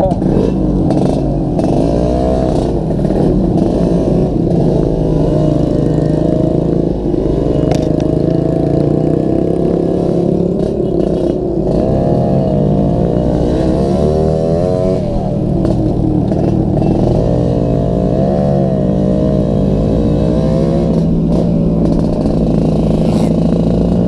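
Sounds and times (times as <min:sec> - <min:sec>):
two-stroke motorcycle engine revving: 0:00.0 - 0:24.0
exhaust rattling and jingling: 0:14.9 - 0:17.5, 0:20.8 - 0:24.0.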